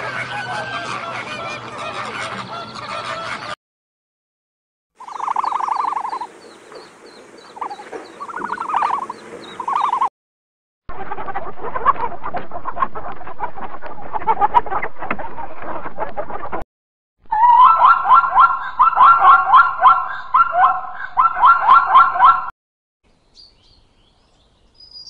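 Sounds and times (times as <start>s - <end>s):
chickens clucking: 0.0s - 3.6s, 5.0s - 10.1s
high regular chirping: 5.0s - 10.1s
short pulsing calls: 5.0s - 10.1s.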